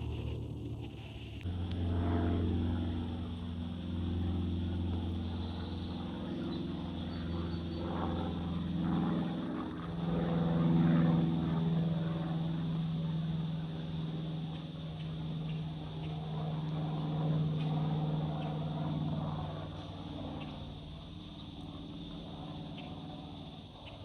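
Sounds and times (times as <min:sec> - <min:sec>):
aircraft engine drone: 0:00.0 - 0:24.0.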